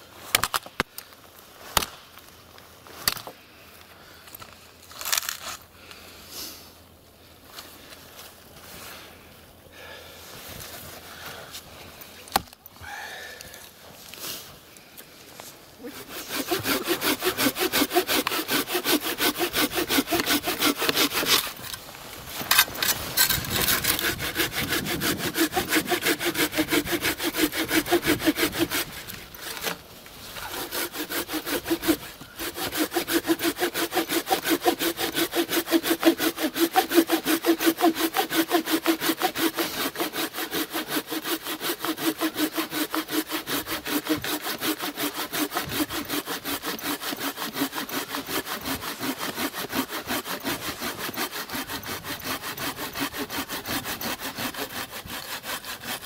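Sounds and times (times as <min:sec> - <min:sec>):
pruning saw cutting wood: 0:04.9 - 0:05.6, 0:15.8 - 0:56.0.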